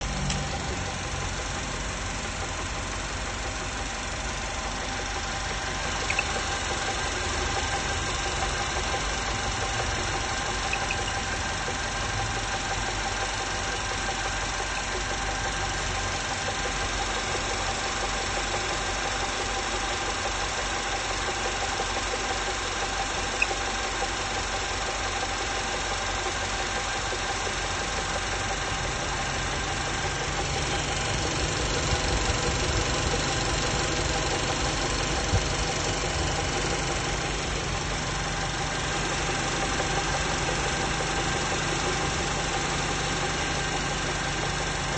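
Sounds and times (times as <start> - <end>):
car engine idling with knock: 0.0 - 44.9.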